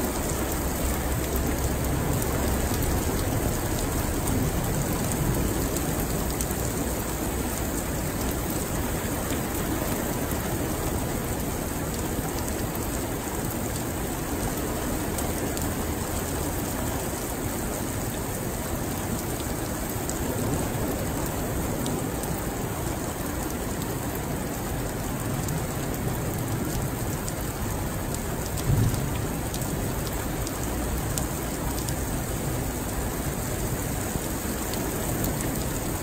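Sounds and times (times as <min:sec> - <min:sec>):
heavy rain on pavement: 0:00.0 - 0:36.0
low thump: 0:28.7 - 0:29.2.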